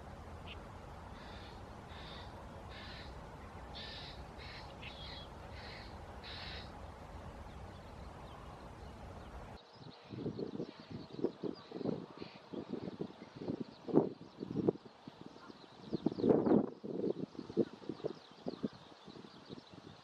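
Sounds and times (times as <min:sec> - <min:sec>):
bird calling: 0:00.0 - 0:09.6
low rumbling wind noise: 0:00.0 - 0:20.0.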